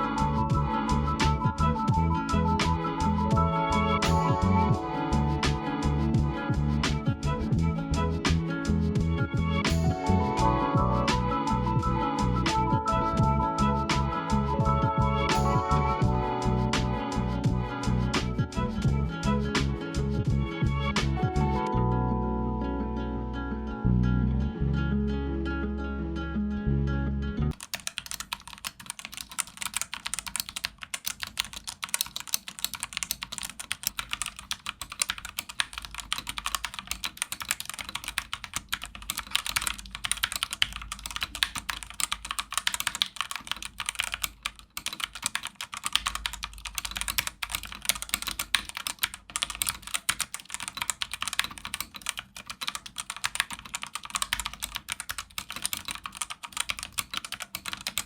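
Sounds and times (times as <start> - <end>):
mechanical keyboard typing: 14.8 - 15.8, 27.5 - 58.0.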